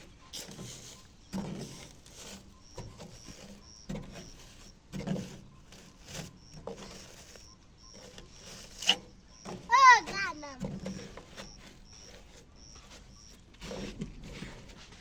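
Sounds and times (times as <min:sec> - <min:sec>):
bird peeping: 0:00.0 - 0:04.5, 0:07.2 - 0:09.6, 0:11.3 - 0:13.5
knocks and rustles: 0:00.0 - 0:07.3, 0:08.1 - 0:15.0.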